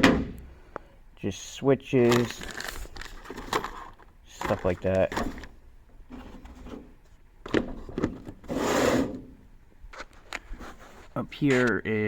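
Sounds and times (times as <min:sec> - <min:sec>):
rubbing scrape: 0:08.4 - 0:09.2.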